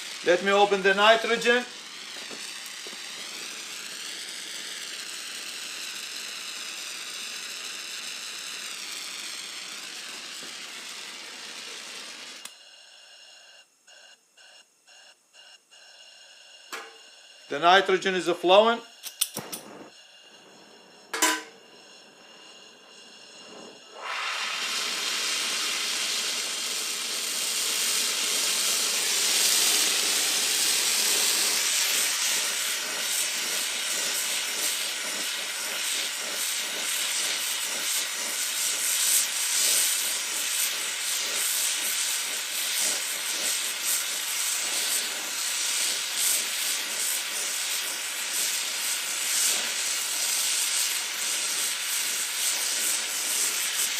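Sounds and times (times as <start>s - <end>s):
brazing torch burning loudly: 0.0s - 53.9s
sharp click: 19.0s - 19.8s.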